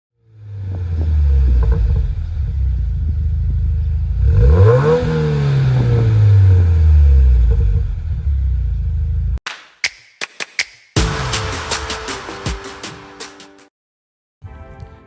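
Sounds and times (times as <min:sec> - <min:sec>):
car engine idling and revving: 0:00.2 - 0:09.4.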